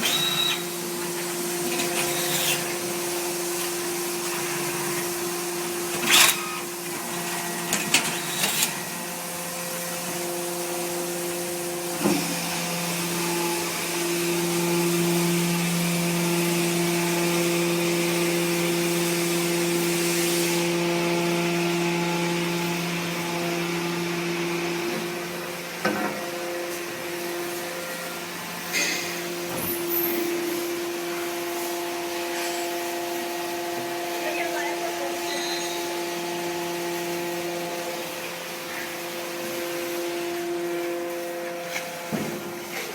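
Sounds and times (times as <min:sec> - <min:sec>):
hydraulic unit humming: 0:00.0 - 0:17.0.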